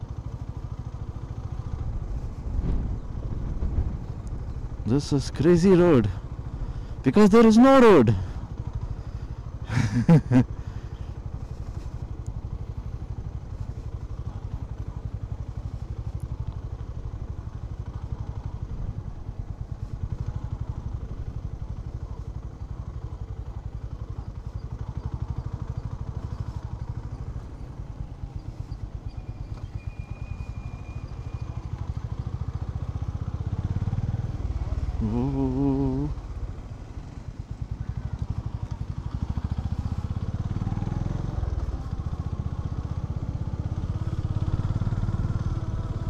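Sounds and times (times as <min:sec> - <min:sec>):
motorcycle engine running: 0:00.0 - 0:46.0.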